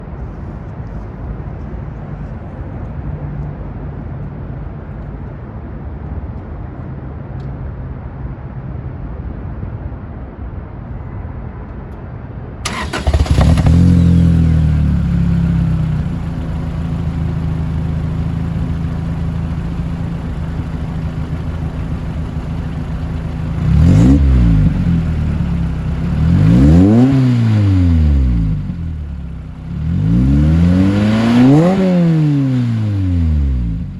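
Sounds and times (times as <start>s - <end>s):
car engine starting and idling: 12.6s - 33.9s
car engine revving: 12.7s - 33.9s
low hum: 13.0s - 31.0s.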